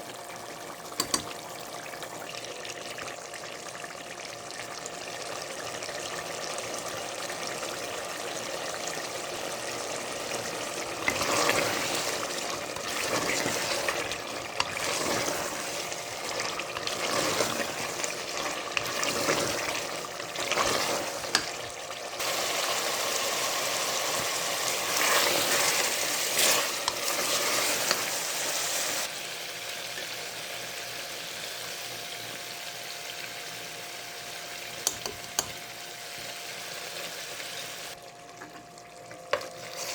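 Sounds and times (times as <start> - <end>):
food sizzling in a pan: 0.0 - 38.7
stirring and scraping in a pan: 10.1 - 29.1.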